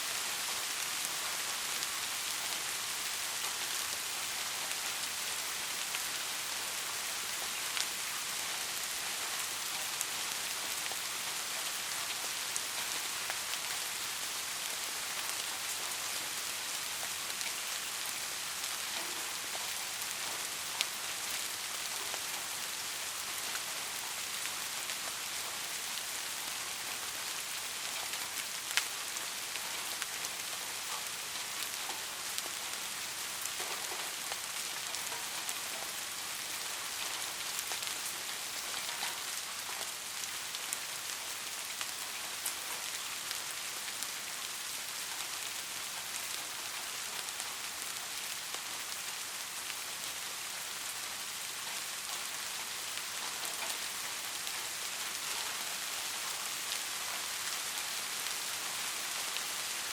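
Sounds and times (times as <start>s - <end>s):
rain hissing: 0.0s - 59.9s
raindrops ticking on a surface: 0.1s - 59.9s.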